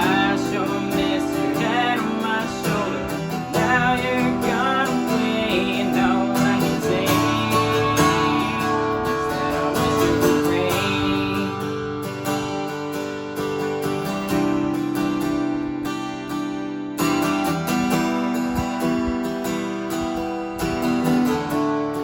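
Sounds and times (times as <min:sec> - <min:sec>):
person singing: 0:00.0 - 0:12.3
acoustic guitar strumming: 0:00.0 - 0:22.0.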